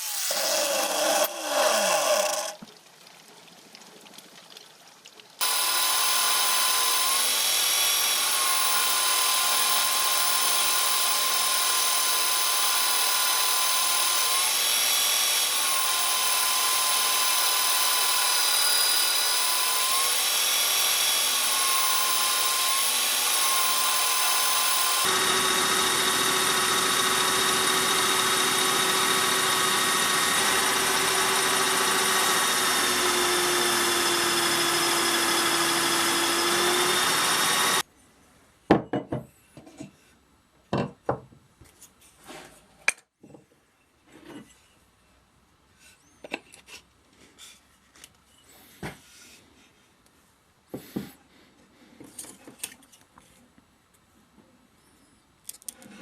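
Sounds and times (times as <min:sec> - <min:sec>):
electric power tool running: 0:05.4 - 0:37.8.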